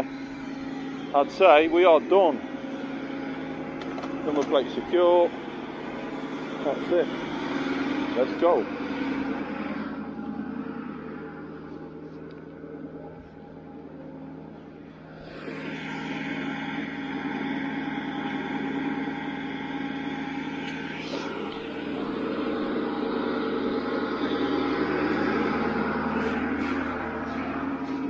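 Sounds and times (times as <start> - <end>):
truck engine running: 0.0 - 28.0.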